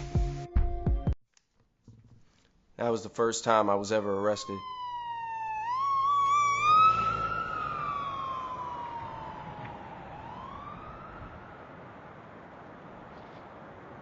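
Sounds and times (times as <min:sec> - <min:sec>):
police siren wailing: 0:03.9 - 0:14.0.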